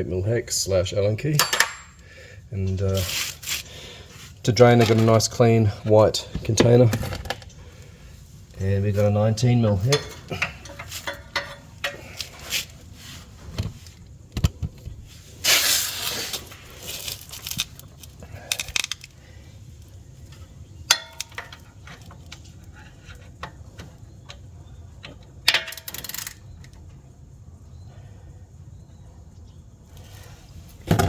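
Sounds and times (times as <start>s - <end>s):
metal hand tools clinking: 1.4s - 2.0s
rustling: 2.9s - 5.3s, 6.4s - 14.0s, 15.0s - 19.1s.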